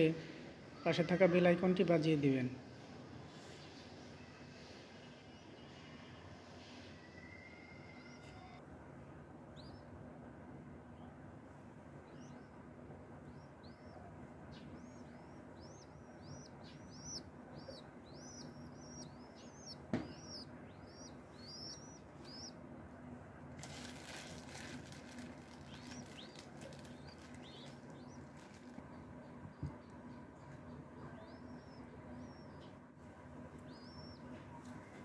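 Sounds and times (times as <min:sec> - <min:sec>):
baby dove cheeping: 0:05.8 - 0:08.6, 0:09.5 - 0:09.9, 0:12.1 - 0:22.6, 0:23.6 - 0:35.0
wings fluttering: 0:23.6 - 0:29.0.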